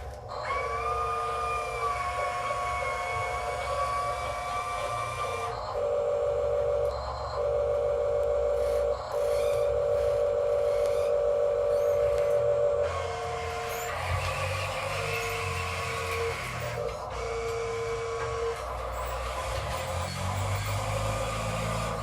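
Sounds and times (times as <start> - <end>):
electric motors whining: 0.0 - 22.0
low hum: 5.3 - 18.9.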